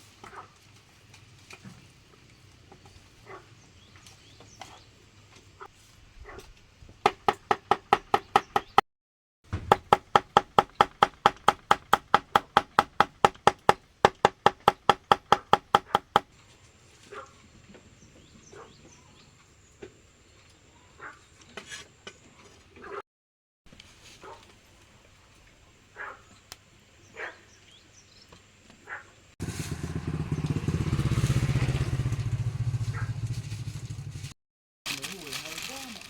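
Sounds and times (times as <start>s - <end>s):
rapid ringing chopping knocks: 9.5s - 16.2s.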